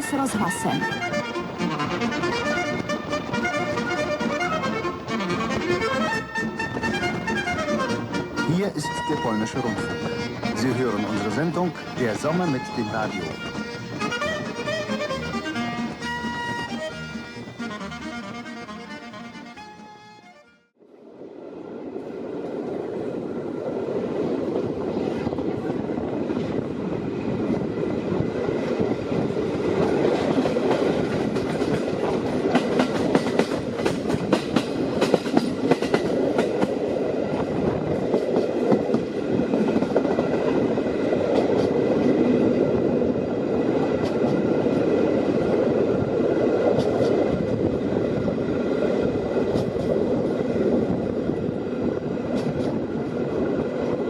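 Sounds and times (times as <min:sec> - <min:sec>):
train wheels rumbling on track: 0:00.0 - 0:20.4, 0:21.1 - 0:54.0
wheels clicking over rail joints: 0:29.6 - 0:42.8.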